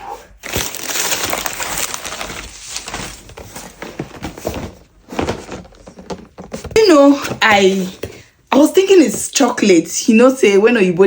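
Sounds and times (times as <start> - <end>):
packaging crinkling and rustling: 0.4 - 8.2.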